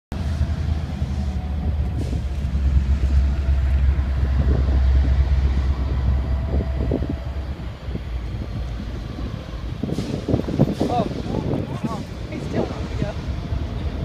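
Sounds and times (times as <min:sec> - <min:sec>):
freight train rumbling: 0:00.1 - 0:14.0.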